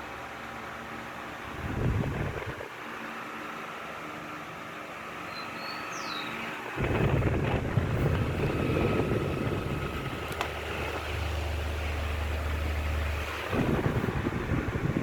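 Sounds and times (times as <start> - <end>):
table fan running: 0.0 - 15.0.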